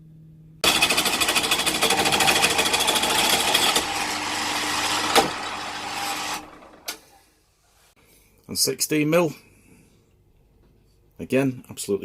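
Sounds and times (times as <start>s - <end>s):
pillar drill cutting steel: 0.6s - 7.0s.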